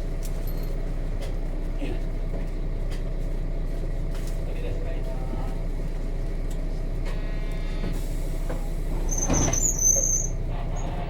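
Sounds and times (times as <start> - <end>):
bus diesel engine running: 0.0 - 11.0
brief high squeal: 9.0 - 10.4.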